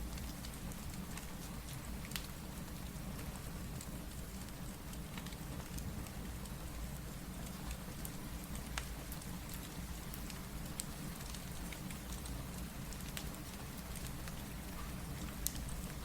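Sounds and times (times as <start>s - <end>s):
steady rain: 0.0s - 16.0s
wood fire crackling: 0.1s - 16.0s.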